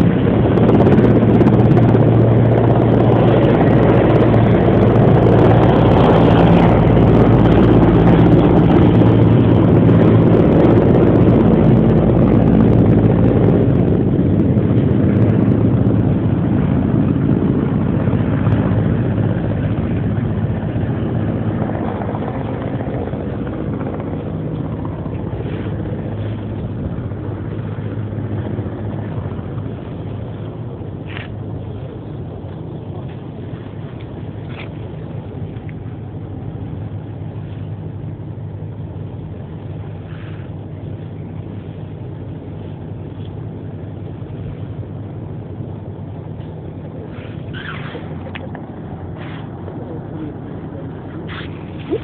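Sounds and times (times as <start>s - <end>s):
helicopter drone: 0.0s - 52.0s.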